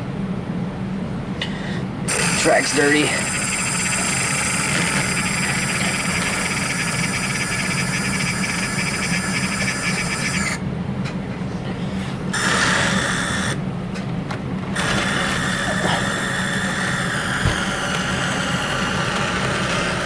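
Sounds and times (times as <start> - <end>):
steady low hum: 0.0 - 20.0
small electric motor whining: 2.1 - 10.6, 12.4 - 13.6, 14.8 - 20.0.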